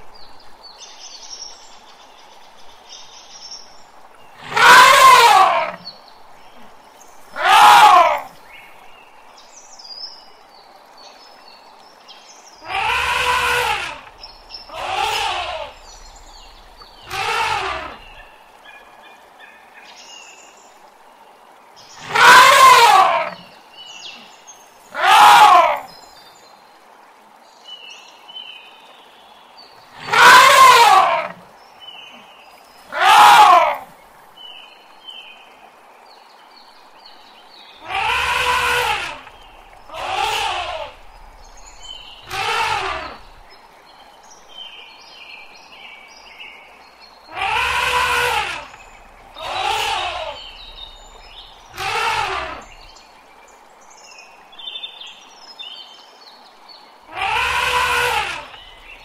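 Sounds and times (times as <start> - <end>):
elephant trumpeting: 4.4 - 5.8, 7.3 - 8.3, 12.6 - 18.3, 22.0 - 23.5, 24.9 - 25.9, 30.0 - 31.4, 32.9 - 33.9, 37.8 - 43.5, 47.3 - 52.9, 57.1 - 59.0.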